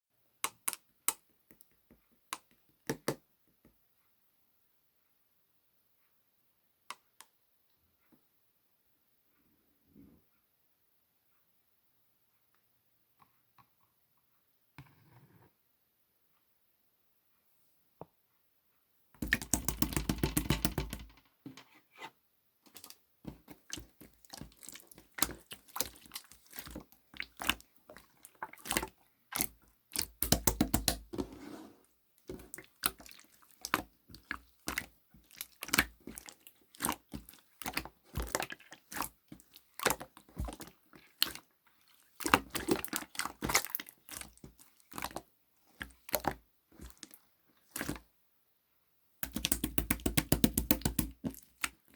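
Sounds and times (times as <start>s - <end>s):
slime squished by hand crackling: 49.2s - 51.9s.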